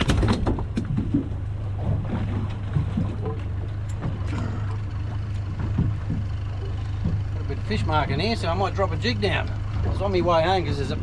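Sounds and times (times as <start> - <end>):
boat motor humming: 0.0 - 11.0
water on hull: 0.0 - 11.0
short knocks: 5.4 - 7.4.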